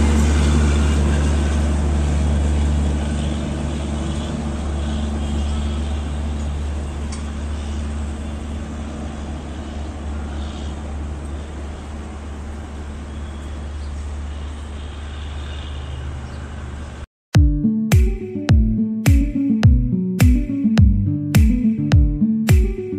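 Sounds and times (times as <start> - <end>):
train coaches rumbling: 0.0 - 13.1
low engine drone: 0.0 - 13.6, 17.4 - 22.9.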